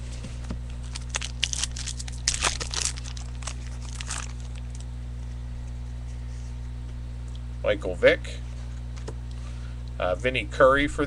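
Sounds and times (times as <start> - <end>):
low electrical hum: 0.0 - 11.0
card wrappers crinkling and tearing: 0.7 - 4.9.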